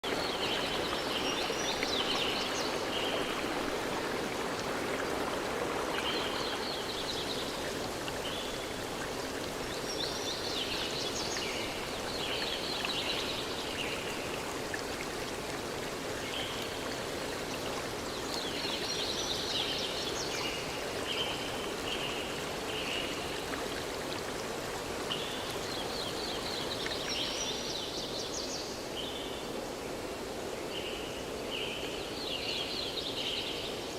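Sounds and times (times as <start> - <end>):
stream flowing over stones: 0.0 - 30.6.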